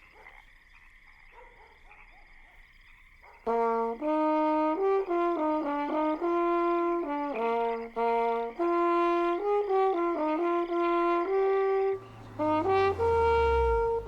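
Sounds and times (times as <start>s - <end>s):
brass melody: 3.5s - 14.0s.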